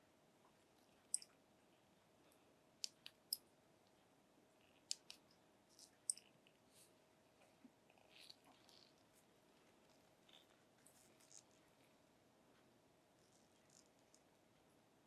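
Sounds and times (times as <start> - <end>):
smartphone parts clicking: 4.9 - 5.2.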